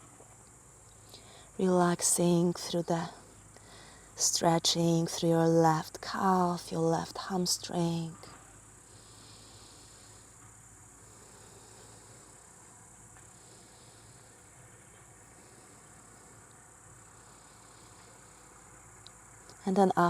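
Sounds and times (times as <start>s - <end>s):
lower pulsing cricket trill: 0.0s - 20.0s.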